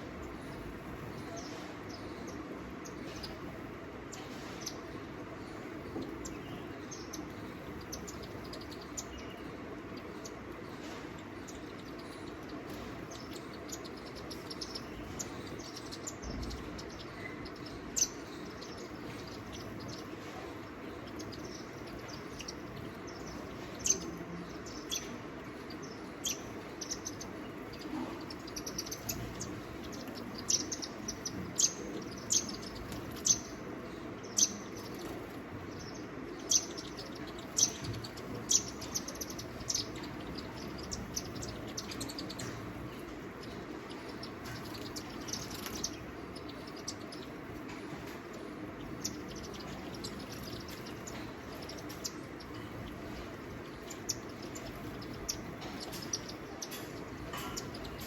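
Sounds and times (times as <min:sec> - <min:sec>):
small birds chirping: 0:00.0 - 0:58.0
steady background hiss: 0:00.0 - 0:58.0.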